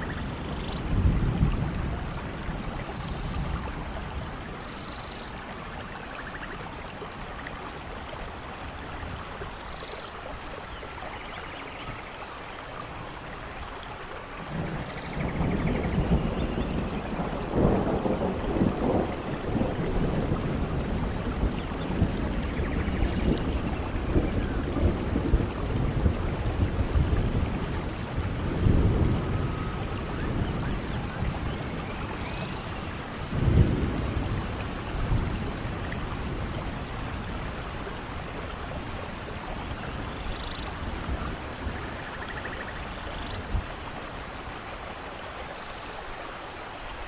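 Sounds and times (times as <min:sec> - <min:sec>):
thunder rumbling: 0:00.0 - 0:04.8, 0:14.4 - 0:43.8
steady rain: 0:00.0 - 0:47.0.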